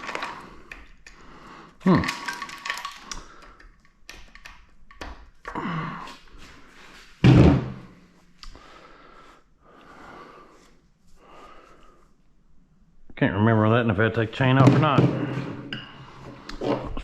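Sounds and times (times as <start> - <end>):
metal parts clicking and clanking: 1.9 - 5.1.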